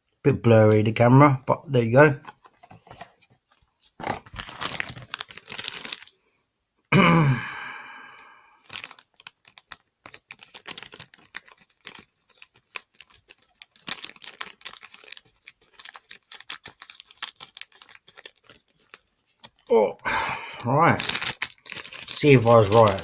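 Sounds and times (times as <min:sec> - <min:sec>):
foil crinkling and crackling: 0:02.4 - 0:06.3, 0:08.6 - 0:23.0
foil bag being torn open: 0:03.8 - 0:06.2, 0:08.6 - 0:23.0.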